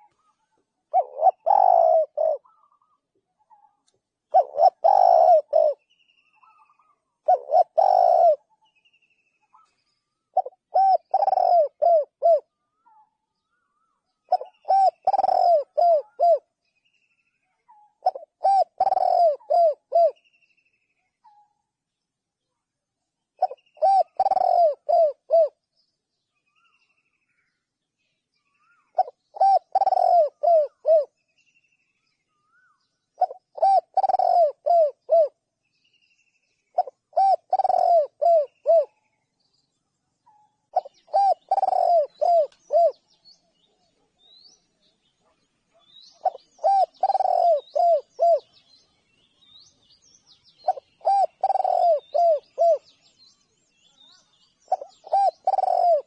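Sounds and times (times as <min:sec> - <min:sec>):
dove cooing: 0:00.0 - 0:08.5, 0:09.6 - 0:12.6, 0:14.3 - 0:16.5, 0:17.8 - 0:20.2, 0:23.4 - 0:25.6, 0:28.8 - 0:31.1, 0:33.2 - 0:35.4, 0:36.7 - 0:39.0, 0:40.7 - 0:43.0, 0:46.2 - 0:48.6, 0:50.6 - 0:53.0, 0:54.7 - 0:56.0
small birds chirping: 0:00.0 - 0:56.0.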